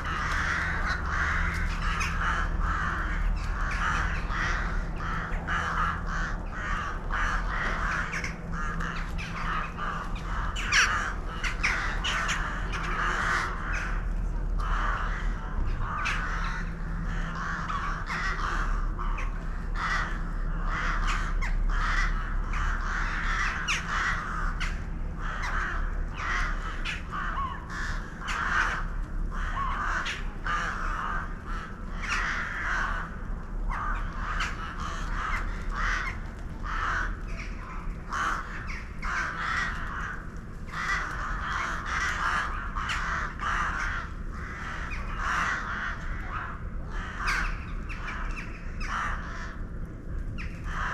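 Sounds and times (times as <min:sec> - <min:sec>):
flock of birds calling: 0:00.0 - 0:50.9
steady low hum: 0:00.0 - 0:50.9.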